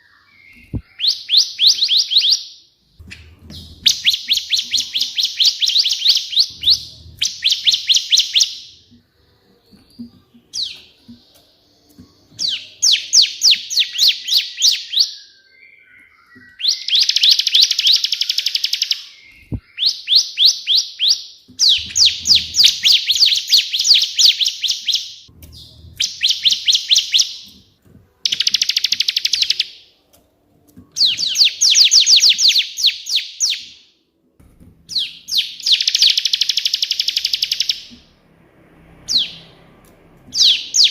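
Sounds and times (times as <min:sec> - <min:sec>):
bird singing rapid high notes: 0:03.6 - 0:08.9, 0:10.5 - 0:27.6, 0:34.9 - 0:37.9, 0:39.0 - 0:39.6, 0:40.3 - 0:40.9.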